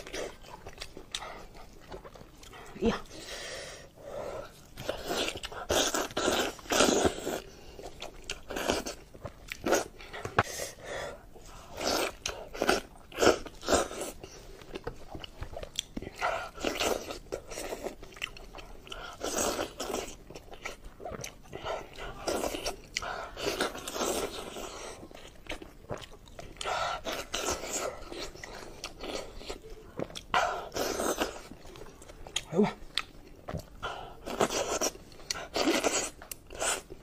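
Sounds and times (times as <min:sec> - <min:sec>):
wet chewing and smacking: 0:00.0 - 0:03.1, 0:04.4 - 0:10.5, 0:11.4 - 0:37.0.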